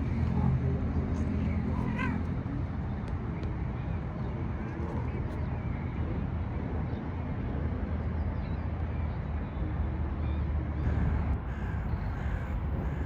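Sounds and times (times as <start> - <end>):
steady low rumble: 10.8 - 13.0.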